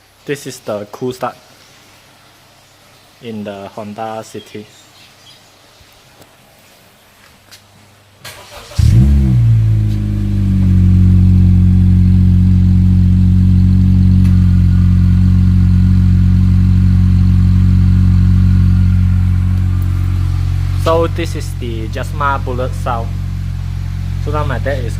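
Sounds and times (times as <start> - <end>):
car engine cranking: 8.2 - 24.9
car engine revving and idling: 8.4 - 24.9.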